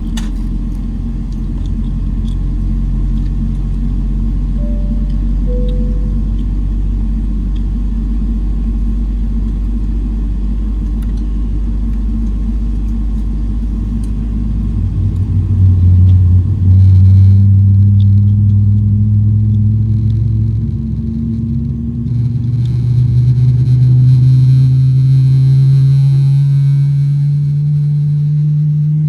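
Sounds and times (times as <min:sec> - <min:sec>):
airplane cabin drone: 0:02.7 - 0:16.7
deep hum: 0:03.8 - 0:09.5
higher hum rising in pitch: 0:04.5 - 0:08.2.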